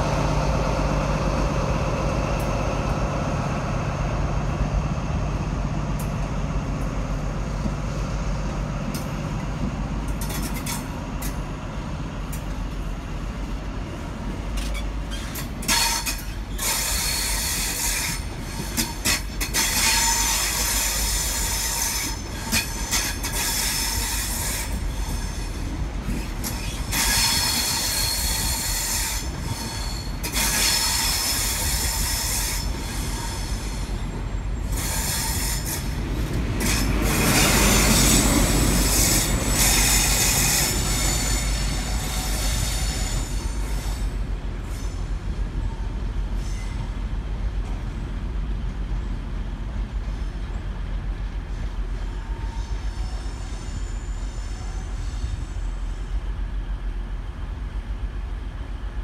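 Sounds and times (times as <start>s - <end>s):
train wheels squealing: 14.6s - 47.1s, 50.0s - 56.4s.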